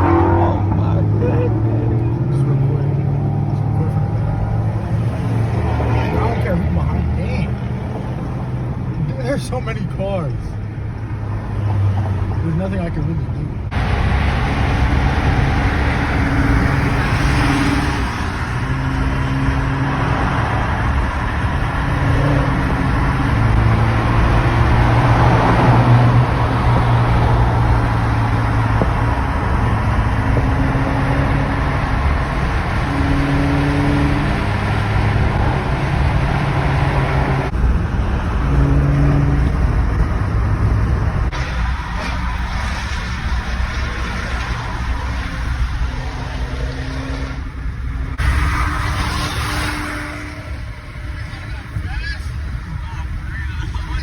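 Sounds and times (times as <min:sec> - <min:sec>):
car engine changing revs: 0:00.0 - 0:54.0
road noise: 0:00.0 - 0:54.0.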